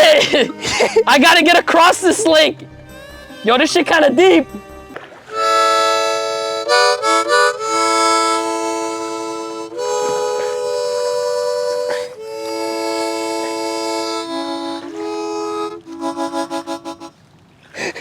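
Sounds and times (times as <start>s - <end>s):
reedy instrument chords: 5.3s - 17.2s.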